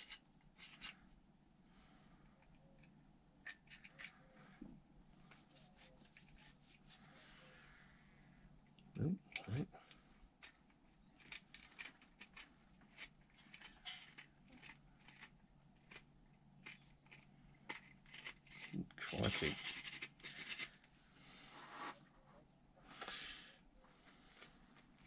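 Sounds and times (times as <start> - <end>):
hand scraping strokes: 21.3 - 22.4.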